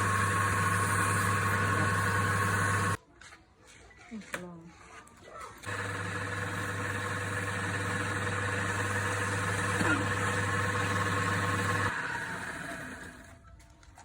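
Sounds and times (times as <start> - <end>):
lathe motor humming: 0.0 - 3.0, 5.6 - 13.4.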